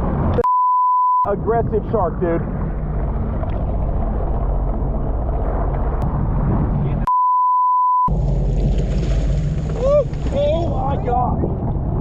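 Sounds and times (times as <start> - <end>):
water noise: 0.0 - 0.5, 1.3 - 7.1, 8.1 - 12.0
censor bleep tone: 0.4 - 1.3, 7.1 - 8.1
wind noise: 1.3 - 7.1, 8.1 - 12.0
jet ski engine running: 1.4 - 7.0, 8.1 - 12.0.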